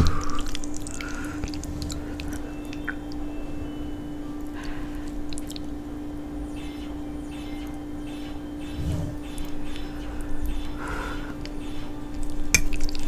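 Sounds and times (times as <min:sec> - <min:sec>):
chewing and wet squishing: 0:00.0 - 0:03.3, 0:04.4 - 0:05.8, 0:11.4 - 0:13.0
steady low hum: 0:00.0 - 0:13.0.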